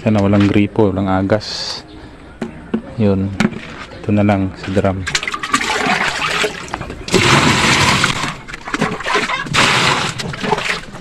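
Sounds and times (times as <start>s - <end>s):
water pouring into washing machine: 5.1s - 11.0s.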